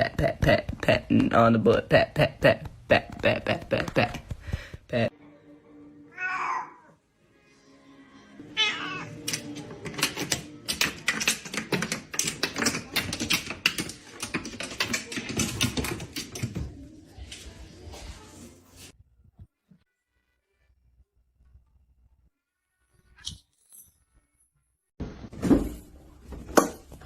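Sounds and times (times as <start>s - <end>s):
cat meowing: 6.1s - 7.0s, 8.6s - 9.1s.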